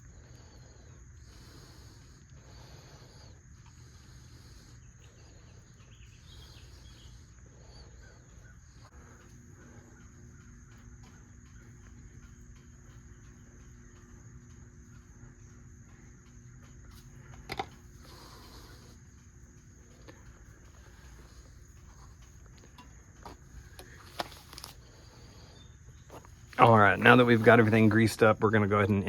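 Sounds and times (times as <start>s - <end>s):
low even hum: 0.0s - 29.0s.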